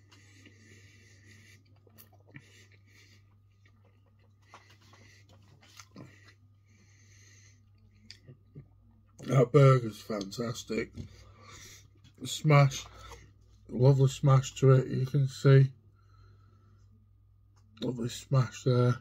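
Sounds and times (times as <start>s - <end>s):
soft nasal breathing: 0.0s - 3.6s, 4.4s - 8.0s, 15.9s - 17.0s
man chewing food: 0.0s - 9.3s, 11.0s - 13.7s
low steady hum: 0.0s - 19.0s.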